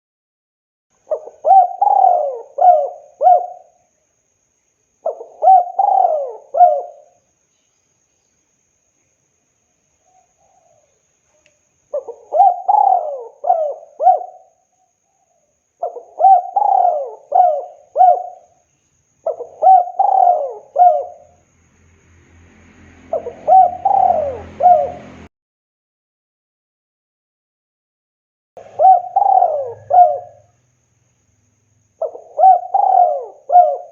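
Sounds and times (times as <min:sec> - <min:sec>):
dove cooing: 0:01.1 - 0:03.8, 0:05.0 - 0:07.2, 0:11.9 - 0:14.6, 0:15.8 - 0:18.6, 0:19.2 - 0:21.4, 0:23.1 - 0:25.3, 0:28.6 - 0:30.6, 0:32.0 - 0:33.9.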